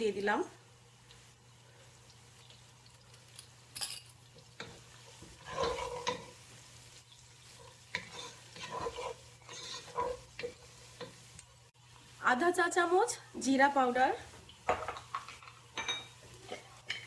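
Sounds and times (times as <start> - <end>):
spices sizzling in oil: 0.0 - 17.0
spoon scraping a metal pot: 4.6 - 6.3, 7.9 - 10.6.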